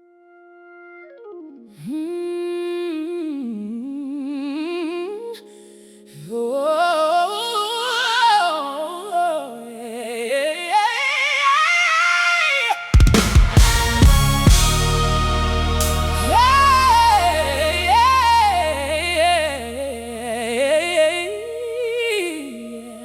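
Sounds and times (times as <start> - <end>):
steady held tones: 13.0 - 23.0.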